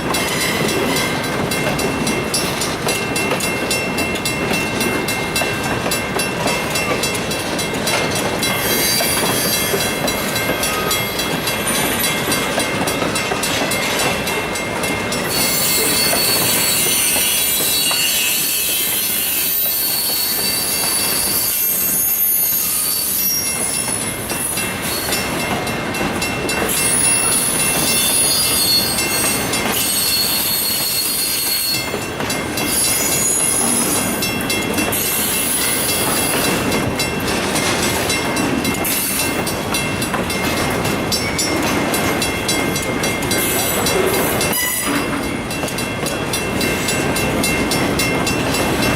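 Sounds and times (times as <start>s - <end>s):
train wheels rumbling on rails: 0.0s - 48.9s
high-pitched wheel squeal: 8.6s - 9.8s, 15.3s - 24.0s, 26.8s - 31.9s, 32.7s - 34.0s, 44.5s - 45.1s.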